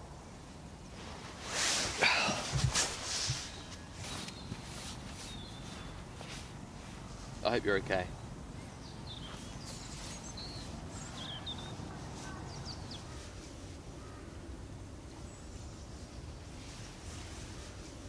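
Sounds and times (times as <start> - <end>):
birds chirping: 2.0 - 6.6, 7.4 - 16.5.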